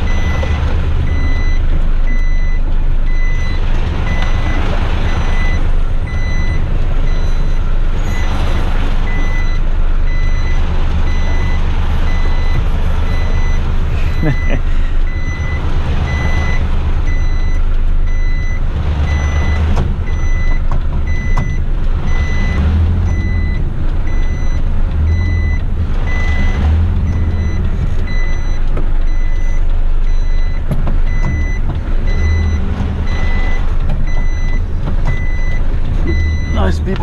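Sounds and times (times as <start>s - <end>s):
diesel truck engine rumble: 0.0s - 37.0s
truck reversing alarm beeping: 0.0s - 37.0s.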